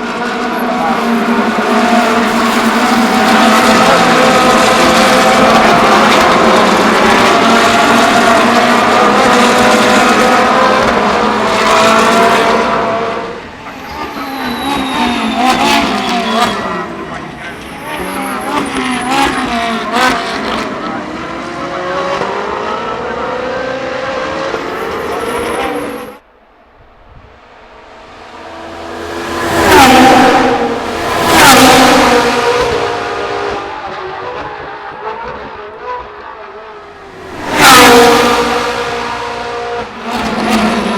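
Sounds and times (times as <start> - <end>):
race car engines running hard: 0.0 - 26.2, 27.0 - 40.9
quieter car engine: 22.7 - 40.9.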